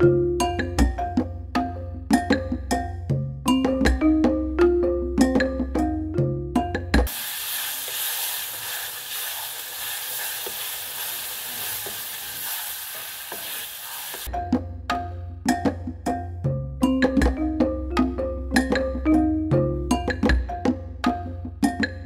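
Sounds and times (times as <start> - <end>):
mallet percussion music: 0.0 - 7.1, 14.3 - 22.0
curry sizzling in hot oil: 7.1 - 14.3
wooden spoon scraping pan: 7.1 - 14.3.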